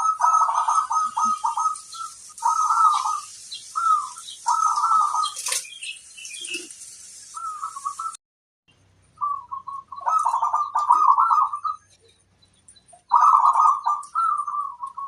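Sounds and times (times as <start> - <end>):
dove cooing: 0.0 - 5.7, 9.2 - 12.0, 13.0 - 15.0.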